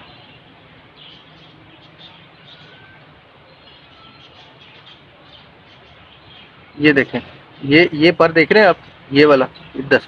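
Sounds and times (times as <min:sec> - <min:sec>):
faint bird chirps and whistles: 0:01.0 - 0:05.0.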